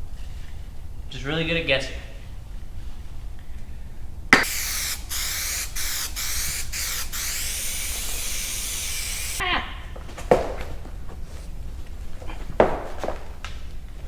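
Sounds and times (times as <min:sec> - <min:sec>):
aerosol can hissing: 0:04.4 - 0:09.4.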